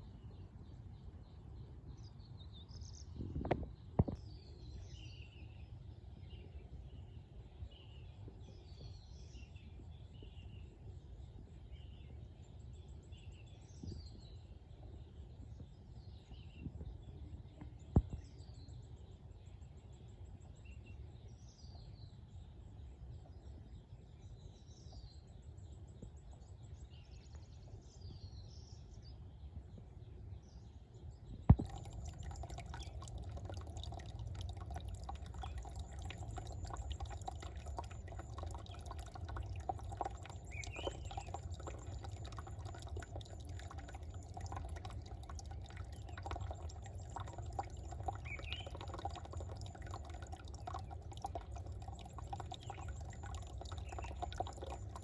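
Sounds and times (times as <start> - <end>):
small birds chirping: 30.5 - 55.0
low background hum: 31.5 - 55.0
water trickling and splashing: 31.5 - 55.0.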